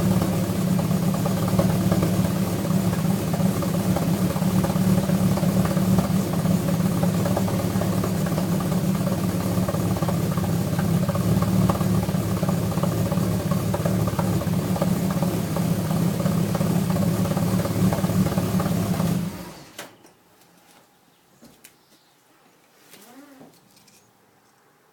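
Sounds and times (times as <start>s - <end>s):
car engine idling: 0.0s - 19.7s.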